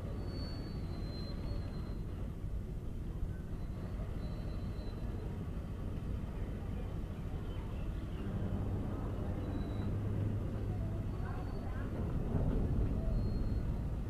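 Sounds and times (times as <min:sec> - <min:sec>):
train rumbling: 0:06.9 - 0:14.0.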